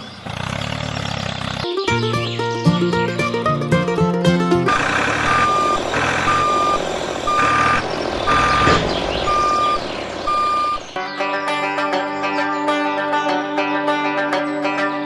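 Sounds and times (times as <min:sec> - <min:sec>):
reversing alarm beeping: 0:09.3 - 0:10.8.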